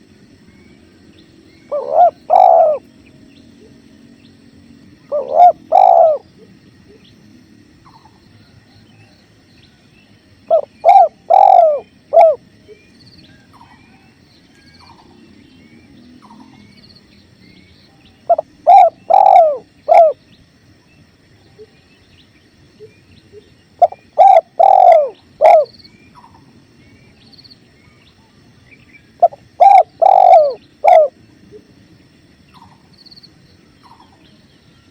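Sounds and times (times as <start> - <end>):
small birds chirping: 0.2 - 8.4, 9.0 - 34.9
dove cooing: 1.6 - 2.9, 5.0 - 7.1, 10.4 - 12.4, 18.2 - 20.2, 22.8 - 26.4, 29.2 - 31.7.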